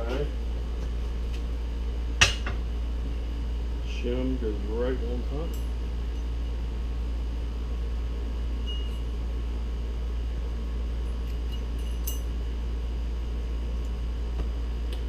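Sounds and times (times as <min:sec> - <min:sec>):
steady low hum: 0:00.0 - 0:15.0
light metallic clinks: 0:11.1 - 0:12.4.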